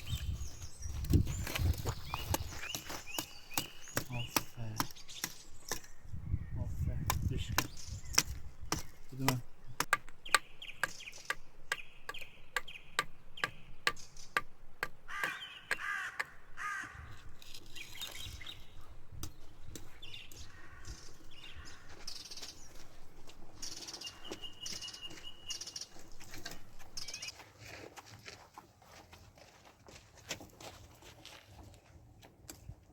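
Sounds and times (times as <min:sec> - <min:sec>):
birds calling: 0:00.0 - 0:27.6
crows cawing: 0:15.0 - 0:17.2, 0:20.4 - 0:22.2.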